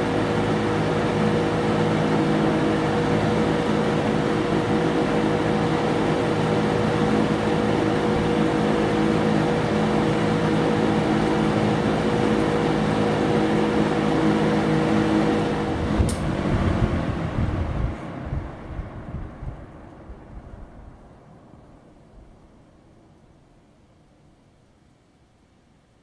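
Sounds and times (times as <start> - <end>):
box fan air rushing: 0.0 - 21.0
fan motor hum: 0.0 - 26.0
fan switch click: 15.9 - 16.4.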